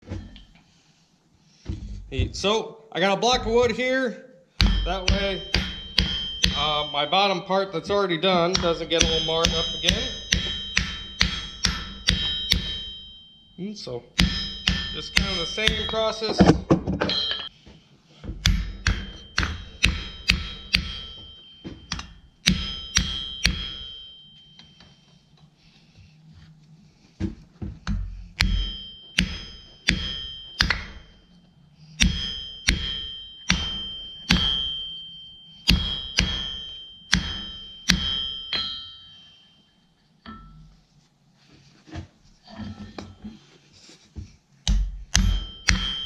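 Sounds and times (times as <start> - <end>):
hammer striking steel on anvil: 4.6 - 26.2, 27.8 - 40.8, 44.6 - 46.0.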